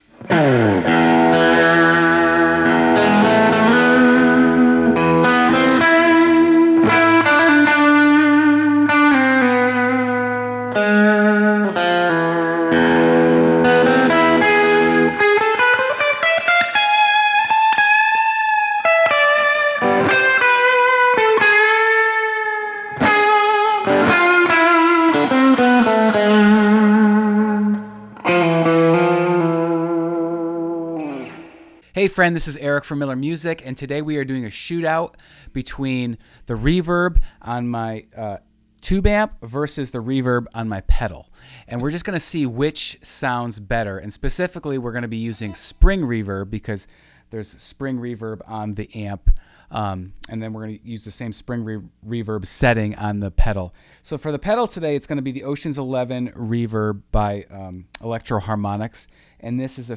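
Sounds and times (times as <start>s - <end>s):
electric guitar playing: 0.0s - 31.9s.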